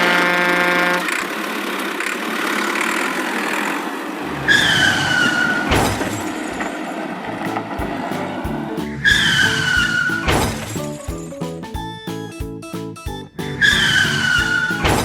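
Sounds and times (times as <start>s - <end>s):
rushing vehicle noise: 0.0s - 11.7s, 13.4s - 15.0s
sharp thump: 5.7s - 6.2s, 7.5s - 11.3s, 14.8s - 15.0s
low rumbling: 7.2s - 11.4s.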